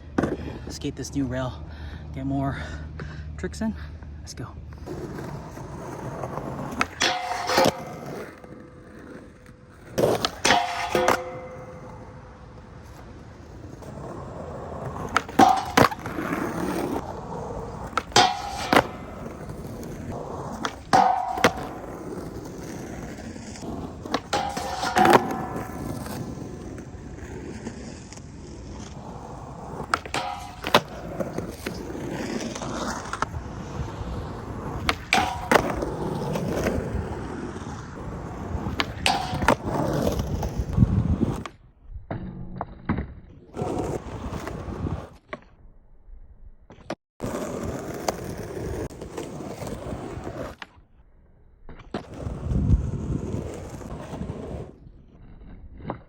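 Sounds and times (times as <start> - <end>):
skateboard wheels rolling on concrete: 0.0 - 56.0
skateboard tail clacking: 4.8 - 41.5, 46.8 - 50.8.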